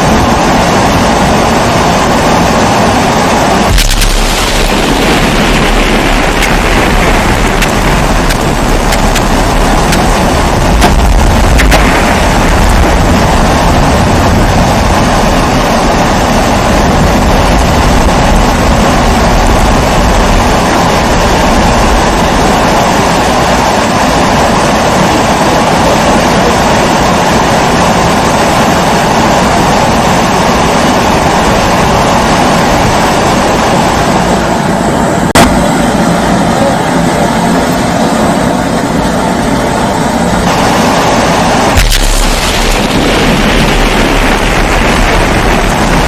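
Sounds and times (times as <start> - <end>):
low rumble: 3.2 - 22.9, 40.4 - 46.0.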